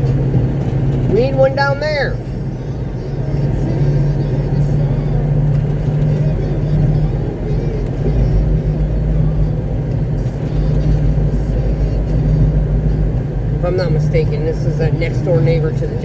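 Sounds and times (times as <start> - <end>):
road rumble: 0.0 - 16.0
truck diesel engine running: 0.0 - 16.0.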